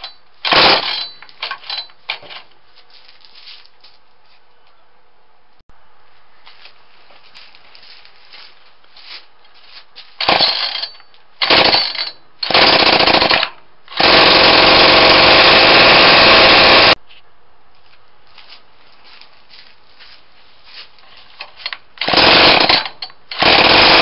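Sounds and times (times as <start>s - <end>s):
two-stroke trimmer engine: 11.4s - 17.0s, 22.0s - 24.0s.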